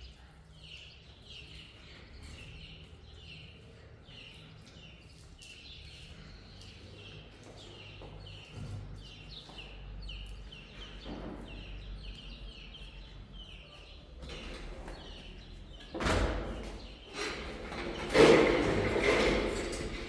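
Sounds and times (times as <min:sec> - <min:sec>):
small bird chirping: 0:00.0 - 0:16.0.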